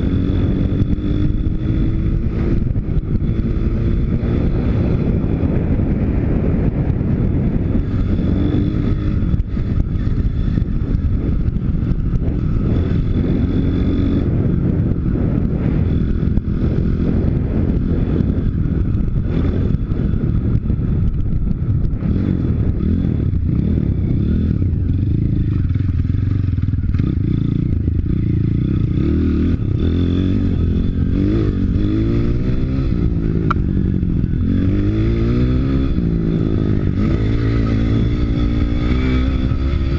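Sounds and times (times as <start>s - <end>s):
pit bike engine revving: 0.0s - 6.5s, 21.8s - 39.9s.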